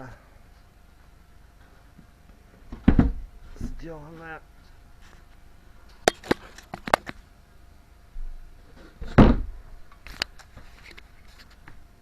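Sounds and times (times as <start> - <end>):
sharp clicks and knocks: 6.0 - 7.2.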